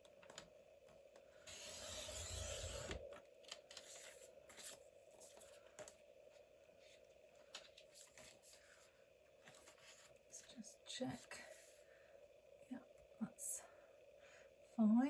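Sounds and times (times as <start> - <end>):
paper trimmer cutting paper: 1.5 - 3.0
paper handling: 3.5 - 6.0, 6.9 - 10.2.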